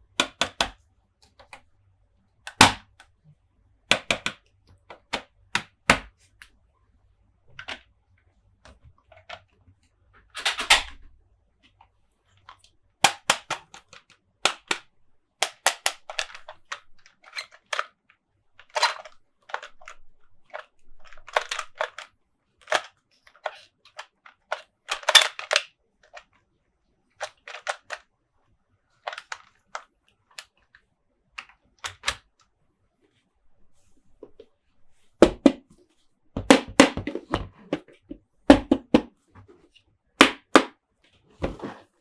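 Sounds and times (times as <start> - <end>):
plastic toys clicking and tapping: 0.2 - 1.7, 2.4 - 3.1, 3.9 - 6.6, 11.6 - 26.4, 27.2 - 28.1, 29.0 - 30.8, 31.4 - 32.3, 36.4 - 39.2.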